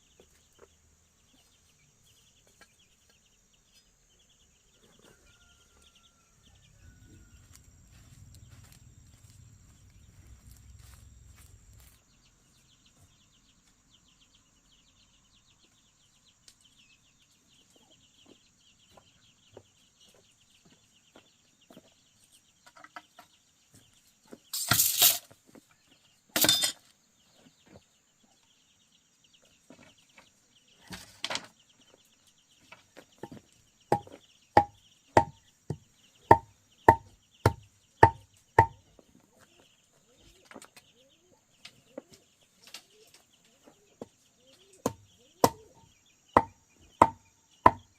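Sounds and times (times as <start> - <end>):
hammer striking nail into wood: 33.9 - 35.4, 36.3 - 38.7, 46.4 - 47.8.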